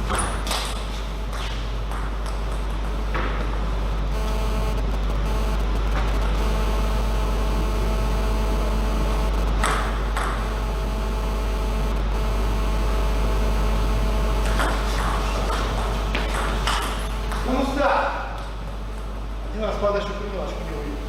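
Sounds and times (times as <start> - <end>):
low hum: 0.0 - 19.6.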